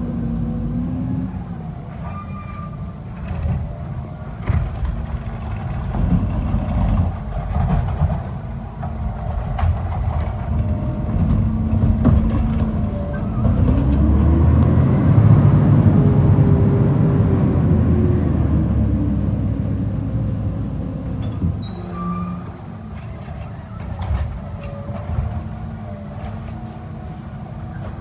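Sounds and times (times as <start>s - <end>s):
garbage truck engine revving: 3.3s - 27.8s
metal clanks and knocks: 4.4s - 14.1s.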